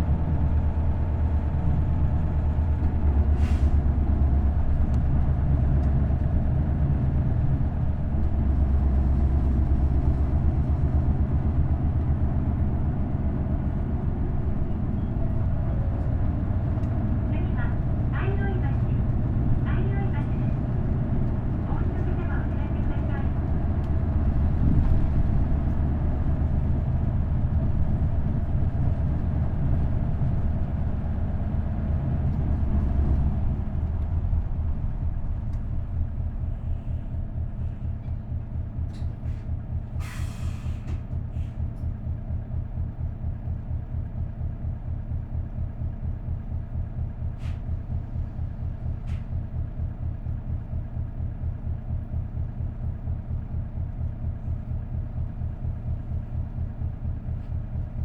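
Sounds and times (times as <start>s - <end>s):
diesel bus engine running: 0.0s - 58.0s
air hiss from bus: 3.4s - 3.8s, 40.0s - 41.6s, 47.4s - 47.6s.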